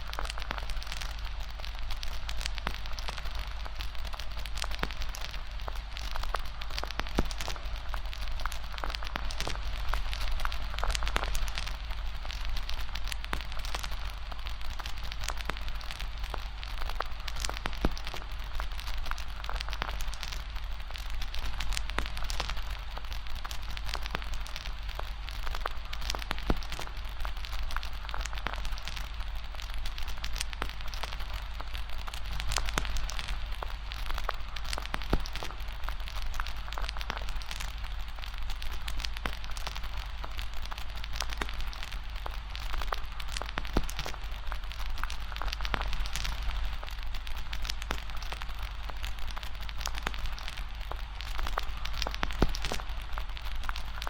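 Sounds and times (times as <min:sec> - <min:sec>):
steady hiss: 0:00.0 - 0:54.0
wood fire crackling: 0:00.0 - 0:54.0.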